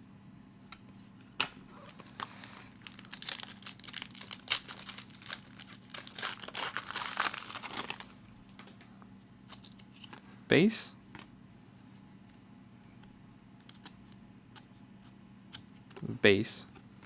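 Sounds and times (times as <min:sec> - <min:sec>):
wrapper tearing and crinkling: 0:01.8 - 0:08.2.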